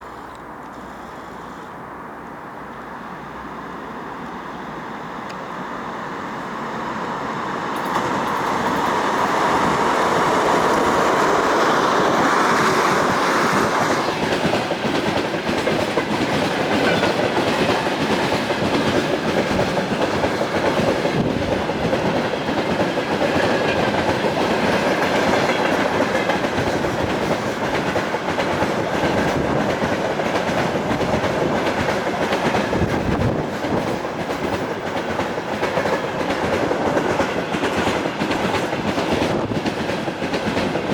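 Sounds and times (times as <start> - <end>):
diesel locomotive engines: 0.0 - 40.9
wheels clickety-clack over rail joints: 7.5 - 40.9.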